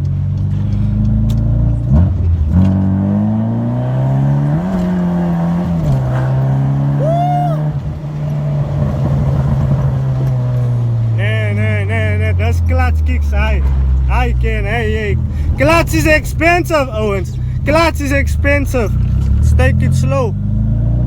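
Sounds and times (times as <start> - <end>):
car engine revving: 0.1 - 21.0
high rising and falling tone: 3.1 - 8.6.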